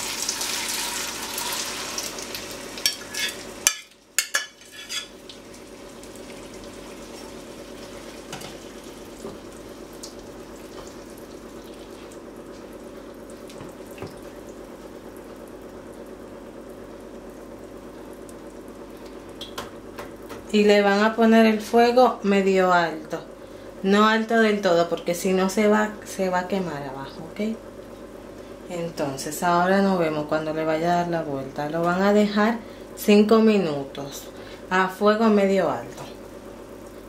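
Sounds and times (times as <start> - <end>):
egg mixture sizzling in oil: 0.0 - 19.5.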